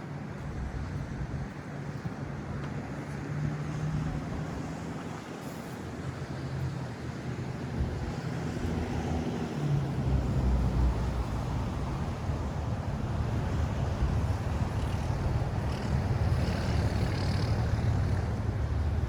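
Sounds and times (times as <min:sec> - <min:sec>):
vehicle engine hum: 0:00.2 - 0:19.0.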